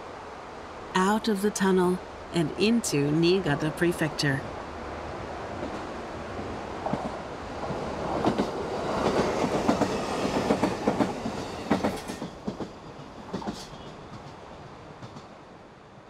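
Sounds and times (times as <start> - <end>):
train wheels clattering: 6.9 - 14.4.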